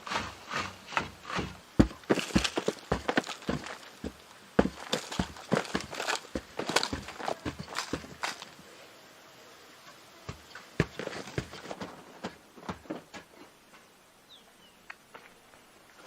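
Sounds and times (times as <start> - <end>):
light knocks and scuffs: 0.1 - 8.5, 10.3 - 13.3.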